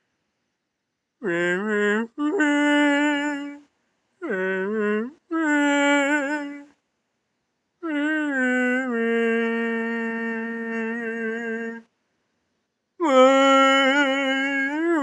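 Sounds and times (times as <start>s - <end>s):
person singing with vibrato: 1.2s - 6.8s, 7.8s - 11.9s, 13.0s - 15.0s.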